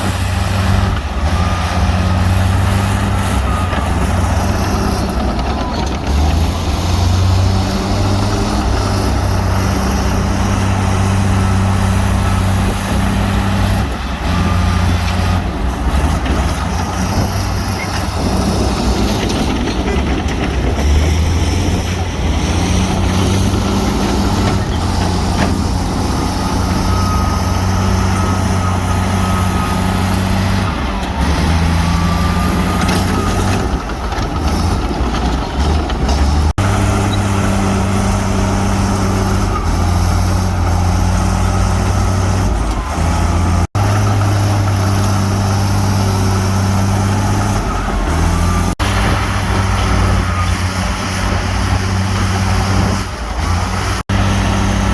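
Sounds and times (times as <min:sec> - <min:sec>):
diesel machinery engines running: 0:00.0 - 0:54.9.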